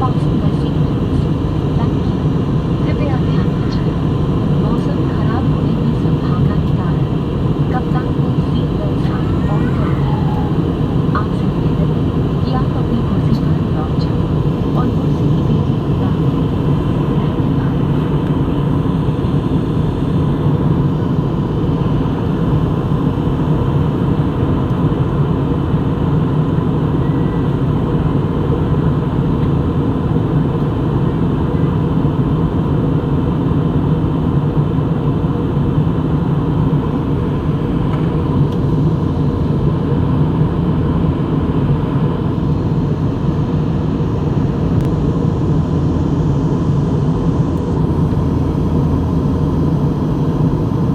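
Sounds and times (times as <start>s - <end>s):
faint constant high tone: 0.0s - 16.2s
airliner cabin engine drone: 0.0s - 50.9s.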